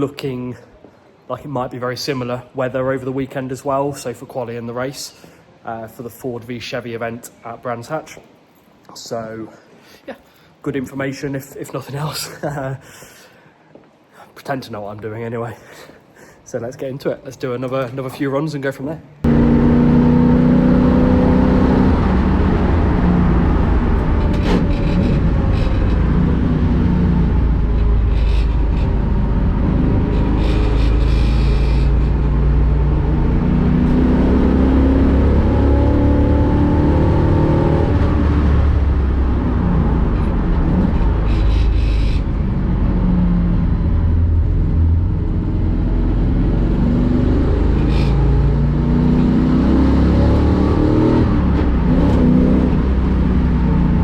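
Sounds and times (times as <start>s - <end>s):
race car engine revving: 19.2s - 54.0s.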